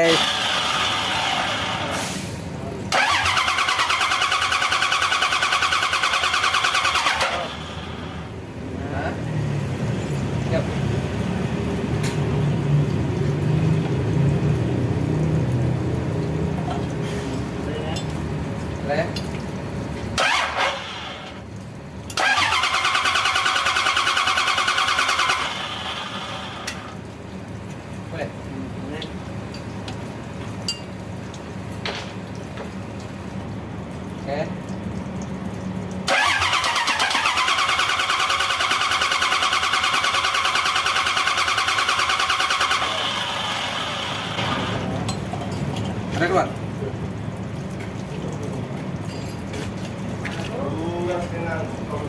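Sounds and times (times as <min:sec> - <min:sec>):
starter motor cranking engine: 0:00.0 - 0:02.1, 0:02.9 - 0:08.3, 0:20.2 - 0:21.4, 0:22.2 - 0:26.9, 0:36.1 - 0:45.0.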